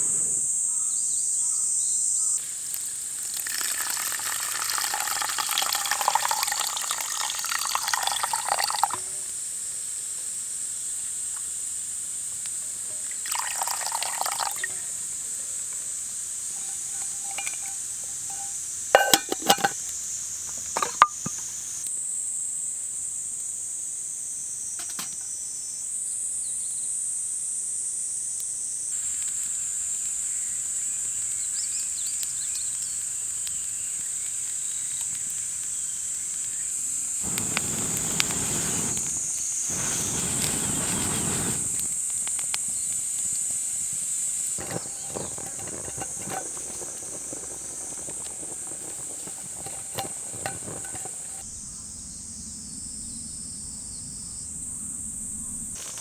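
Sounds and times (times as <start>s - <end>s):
insects chirring: 0.0s - 26.8s, 28.6s - 56.0s
small clicks and crackles: 37.2s - 51.5s.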